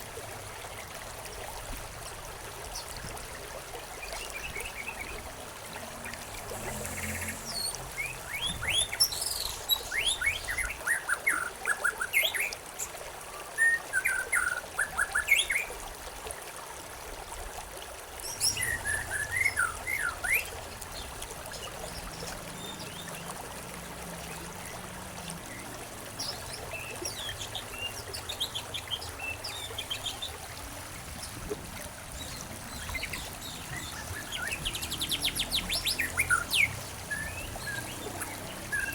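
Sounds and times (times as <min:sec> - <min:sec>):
running stream water: 0:00.0 - 0:38.9
songbirds chirping: 0:02.7 - 0:12.6, 0:18.2 - 0:38.9.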